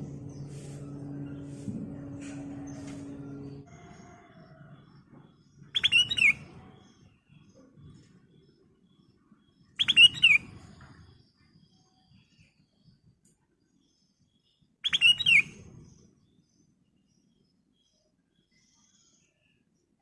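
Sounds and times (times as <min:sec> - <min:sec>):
bulbul singing: 0:00.0 - 0:03.7, 0:05.4 - 0:07.5, 0:09.0 - 0:11.5, 0:14.8 - 0:16.6.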